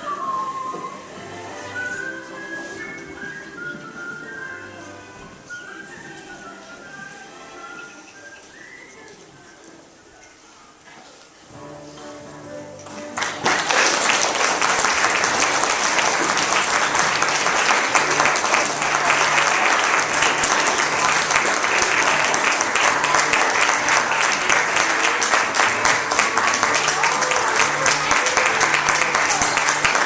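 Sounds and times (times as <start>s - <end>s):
held musical notes: 0.0s - 10.0s, 11.5s - 30.0s
voices in crowd: 0.0s - 11.6s, 13.6s - 30.0s
audience applauding: 12.8s - 30.0s.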